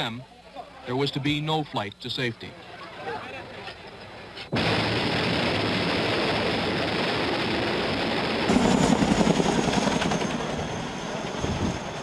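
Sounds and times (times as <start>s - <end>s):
helicopter rotor and engine: 4.6s - 12.0s.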